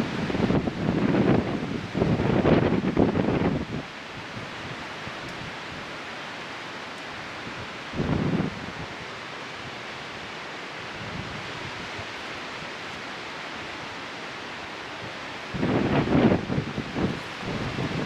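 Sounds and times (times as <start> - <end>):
wind gust buffeting microphone: 0.0 - 5.9, 7.5 - 9.0, 14.9 - 18.0
wind rustling: 0.0 - 18.0.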